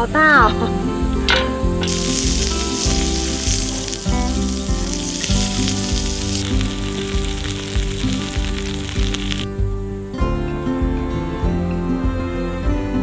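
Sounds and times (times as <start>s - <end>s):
background music: 0.0s - 13.0s
food sizzling on a grill: 0.4s - 9.5s.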